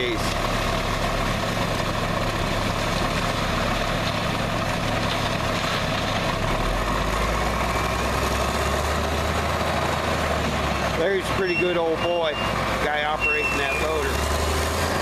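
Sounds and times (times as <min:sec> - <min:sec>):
heavy vehicle engine idling: 0:00.0 - 0:15.0.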